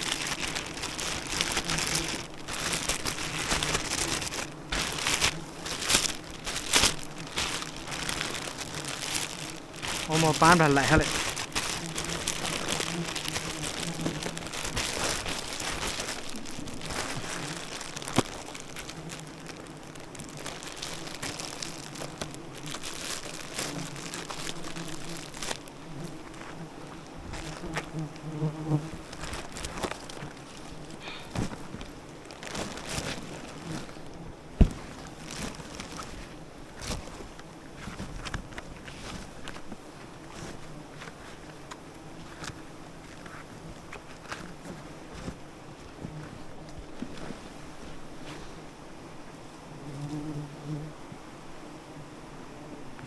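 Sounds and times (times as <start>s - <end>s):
bees buzzing: 0.0s - 31.2s
rustling: 0.0s - 48.7s.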